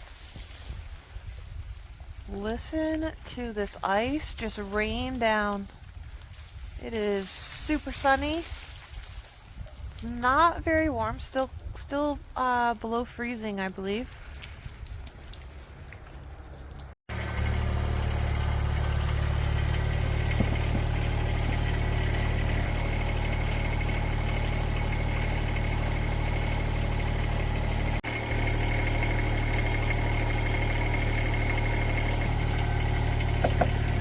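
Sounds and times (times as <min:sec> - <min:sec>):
engine running steadily: 0:16.6 - 0:34.0.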